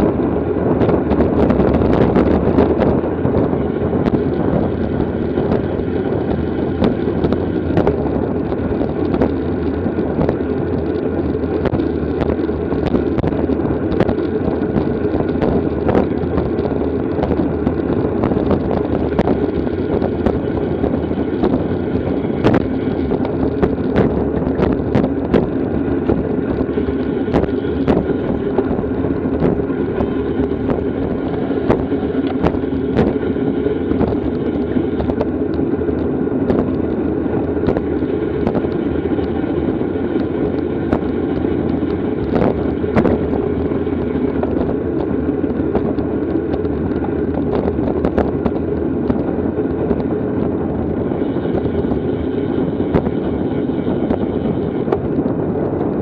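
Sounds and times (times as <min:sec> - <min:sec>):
wind rushing over microphone: 0:00.0 - 0:56.0
bicycle clicks and ticks: 0:00.1 - 0:56.0.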